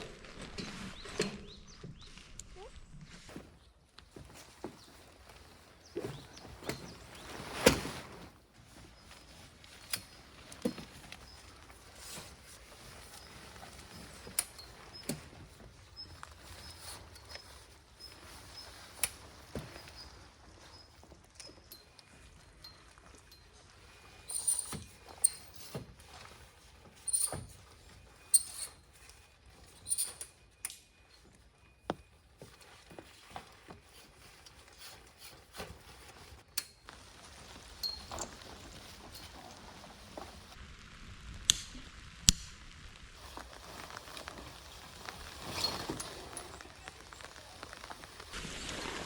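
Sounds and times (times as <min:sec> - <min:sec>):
gear rustling with clicks: 0:08.7 - 0:31.4, 0:43.2 - 0:48.4
light rain: 0:36.9 - 0:49.0.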